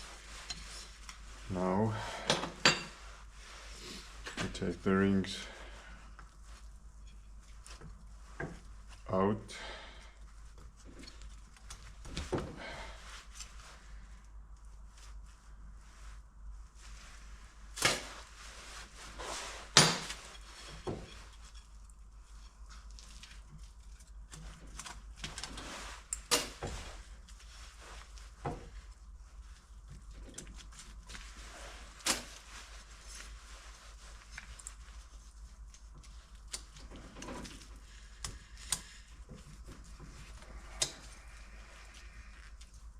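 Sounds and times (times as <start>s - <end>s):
clicks and light scrapes: 0.0s - 1.3s, 34.1s - 42.9s.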